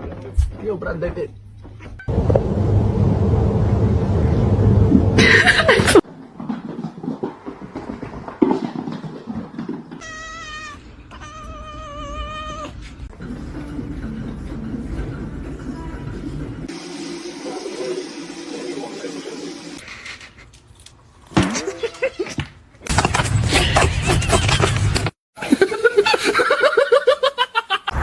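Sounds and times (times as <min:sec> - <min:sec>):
loud even noise: 0:02.1 - 0:06.0
cat meowing: 0:10.0 - 0:13.0.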